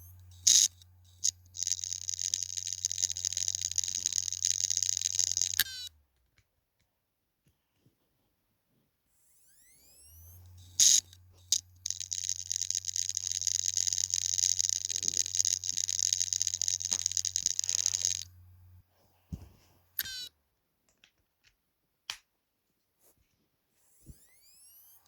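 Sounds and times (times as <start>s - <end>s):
hard disk hum: 0.0s - 5.9s, 10.0s - 18.8s
hard disk rapid clicking buzz: 0.0s - 5.9s, 10.0s - 18.8s
short clicks and chirps: 0.0s - 5.9s, 9.4s - 18.4s, 20.0s - 20.3s.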